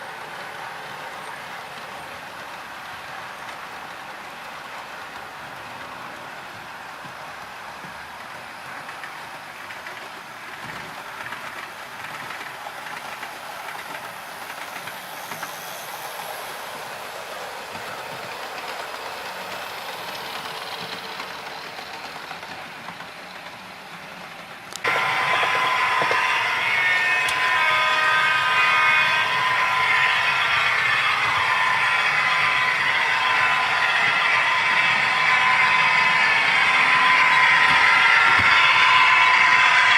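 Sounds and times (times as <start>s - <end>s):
model train whirring: 0.0s - 39.9s
wheels clicking over rail joints: 0.3s - 39.9s
steady whine: 11.0s - 23.6s, 24.7s - 39.9s.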